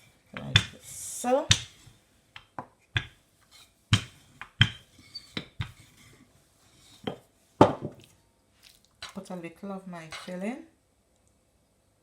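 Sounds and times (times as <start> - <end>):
rolling pin knocking on board: 3.9 - 4.8.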